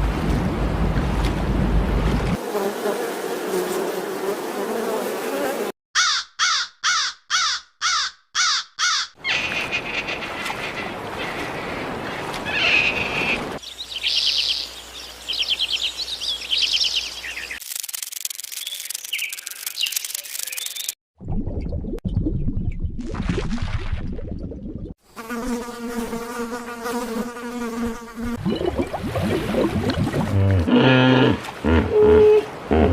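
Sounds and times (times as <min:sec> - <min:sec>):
harsh falling bird calls: 0:06.0 - 0:17.6
chirping and trilling birdsong: 0:08.8 - 0:17.6.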